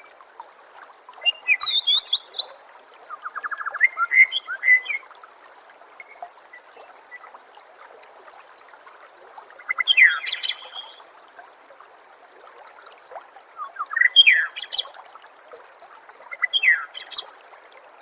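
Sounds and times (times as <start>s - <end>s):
water trickling: 0.0s - 18.0s
songbird whistling: 1.3s - 2.5s.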